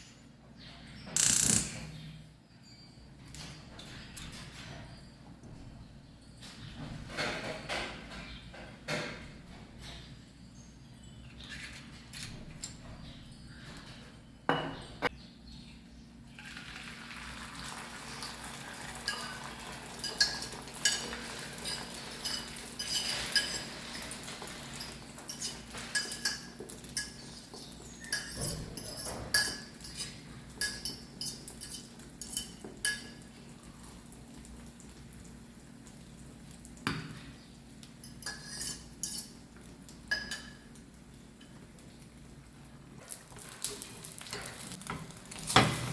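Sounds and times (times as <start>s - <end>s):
utensils knocking on cookware: 19.0s - 33.2s.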